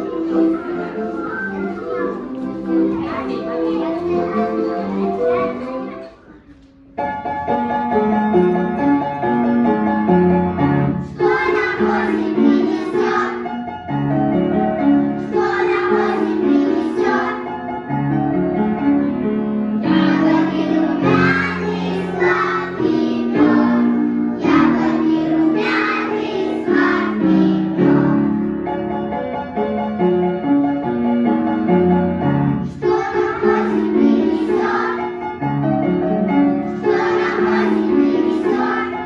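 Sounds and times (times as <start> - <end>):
children singing: 0.0 - 6.5, 11.0 - 13.7, 15.2 - 17.7, 19.8 - 28.5, 32.6 - 35.3, 36.6 - 39.0
keyboard accompaniment: 0.0 - 39.0.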